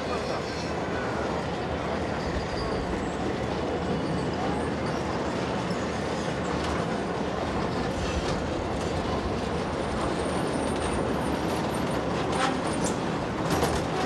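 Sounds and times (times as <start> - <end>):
train wheels rumbling on rails: 0.0 - 14.0
faint high squeal: 0.1 - 6.4.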